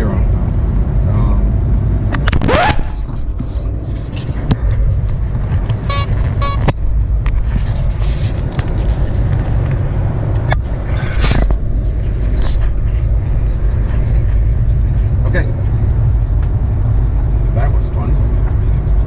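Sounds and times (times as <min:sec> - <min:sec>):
short electronic beeps: 0:05.9 - 0:06.8.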